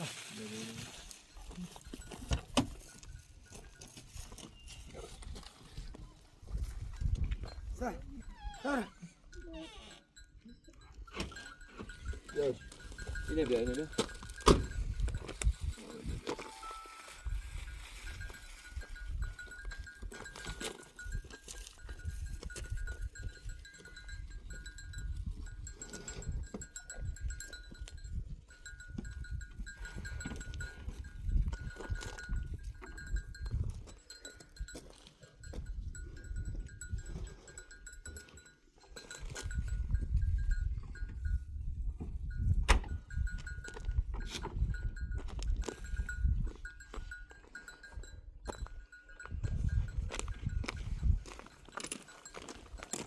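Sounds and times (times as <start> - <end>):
goats and sheep: 0.0 - 53.0
bell tinkling: 10.1 - 15.0, 15.6 - 41.5, 44.7 - 53.0.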